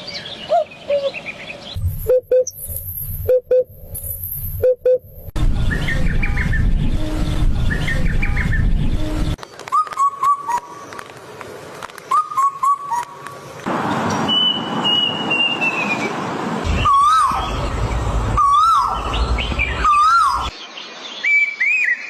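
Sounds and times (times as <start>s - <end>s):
birds twittering: 0.0s - 3.2s, 12.0s - 22.0s.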